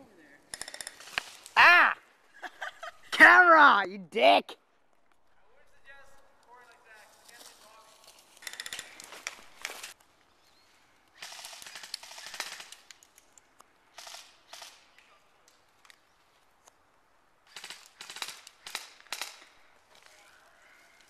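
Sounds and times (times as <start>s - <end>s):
airsoft guns firing bursts: 0.5s - 1.4s, 8.4s - 10.0s, 11.2s - 12.9s, 13.9s - 14.8s, 17.5s - 19.6s.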